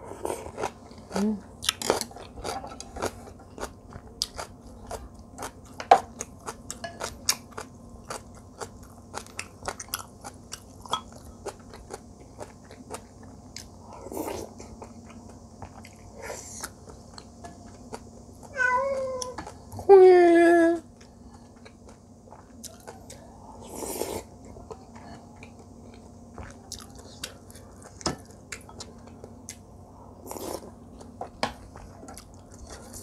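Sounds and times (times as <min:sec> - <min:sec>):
chewing with crunches: 0:00.1 - 0:19.8, 0:20.9 - 0:33.0.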